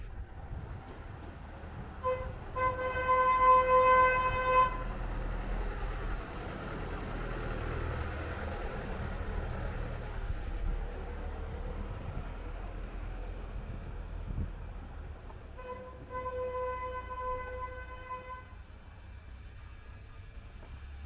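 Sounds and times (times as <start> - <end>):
low vehicle rumble: 0.0 - 21.0
vehicle horn honking: 2.0 - 4.9, 15.6 - 18.6.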